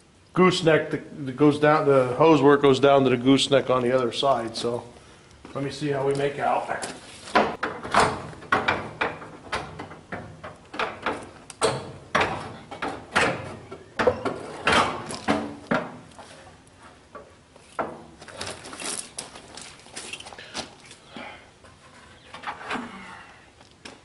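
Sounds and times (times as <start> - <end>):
metal knocks and clunks: 7.3 - 16.1, 17.1 - 18.6.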